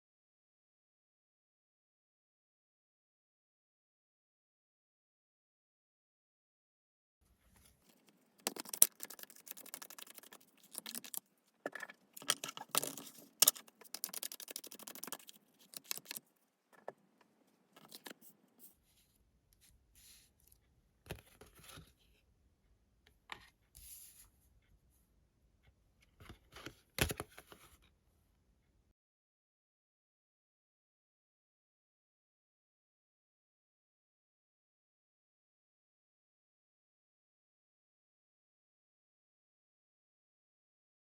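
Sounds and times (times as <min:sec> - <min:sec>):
cards set down: 0:07.9 - 0:14.4
cards shuffling: 0:07.9 - 0:16.2, 0:17.8 - 0:18.3.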